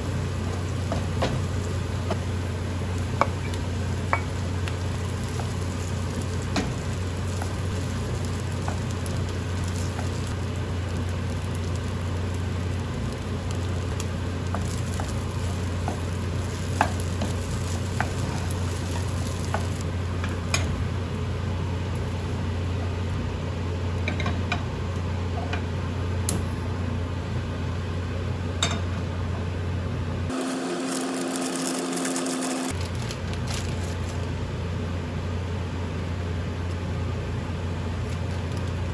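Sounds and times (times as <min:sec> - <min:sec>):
food sizzling in a pan: 0:00.0 - 0:19.9, 0:30.3 - 0:32.8.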